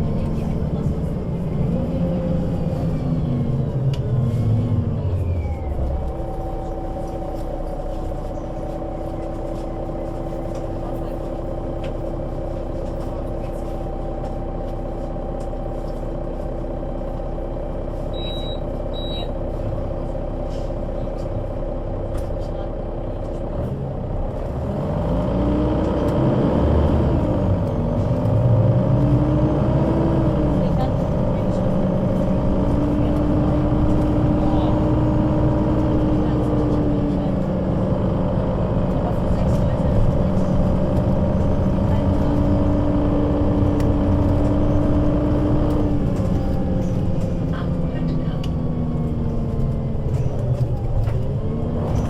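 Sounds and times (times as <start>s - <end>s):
bus engine: 0.0s - 52.0s
short high beeps: 18.1s - 19.3s.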